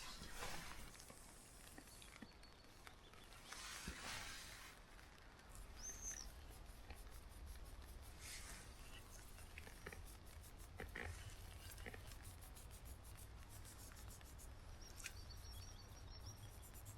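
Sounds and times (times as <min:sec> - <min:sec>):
faint soft rustling: 0:00.0 - 0:16.9
small ticks: 0:04.8 - 0:16.9.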